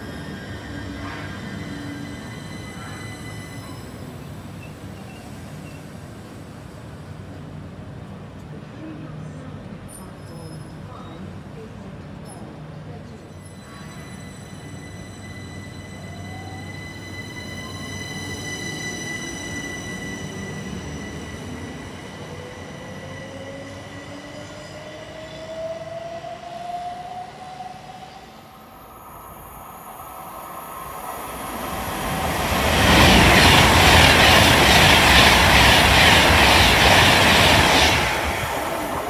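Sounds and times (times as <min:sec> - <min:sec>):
express train rushing past: 0:00.0 - 0:11.7, 0:12.6 - 0:39.0.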